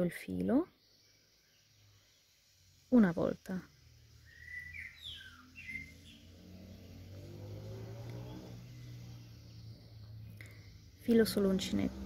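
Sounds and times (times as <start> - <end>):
bird chirps: 0.1 - 2.8, 4.0 - 12.0
passing vehicle hum: 2.6 - 12.0.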